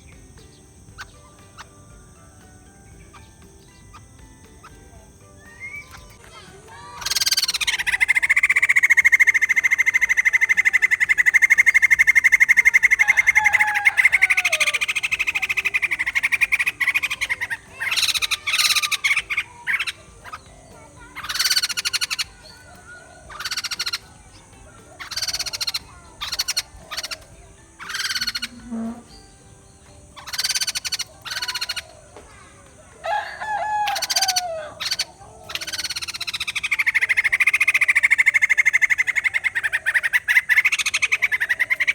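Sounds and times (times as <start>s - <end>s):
bird chattering rattle: 0.0s - 41.9s
short sharp bird calls: 6.8s - 29.3s.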